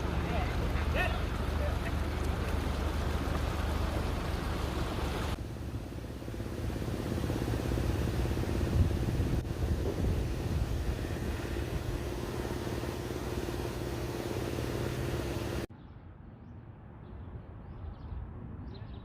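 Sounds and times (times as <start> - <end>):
birds chirping: 0.0 - 5.4
vehicle engine humming: 0.0 - 15.7.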